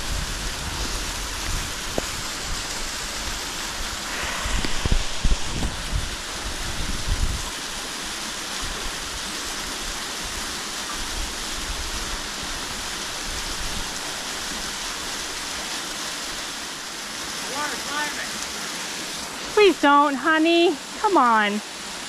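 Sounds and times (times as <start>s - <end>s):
creek and waterfalls rushing: 0.0s - 22.0s
low thumps: 4.0s - 7.4s.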